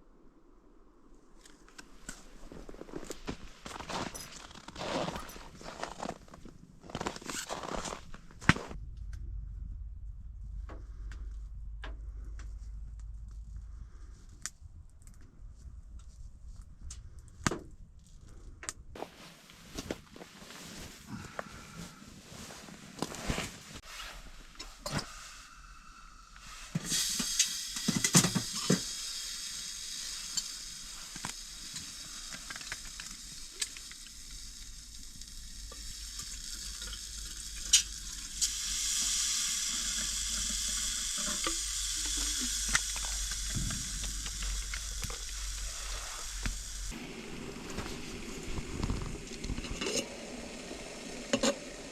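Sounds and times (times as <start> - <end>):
food sizzling in a frying pan: 26.8 - 51.9.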